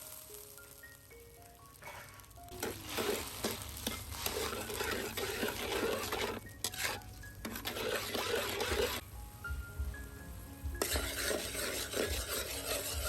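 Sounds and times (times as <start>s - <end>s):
utensil scraping food in a pan: 1.8s - 9.0s, 10.8s - 13.0s.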